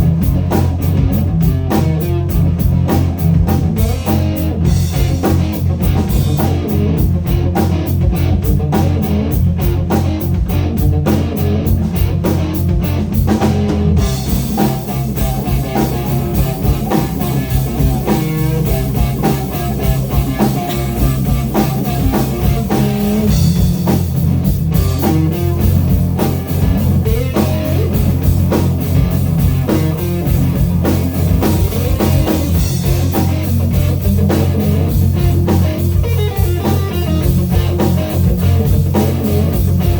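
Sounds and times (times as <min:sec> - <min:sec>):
blues-rock band playing: 0:00.0 - 0:39.9
electric guitar: 0:00.0 - 0:39.9.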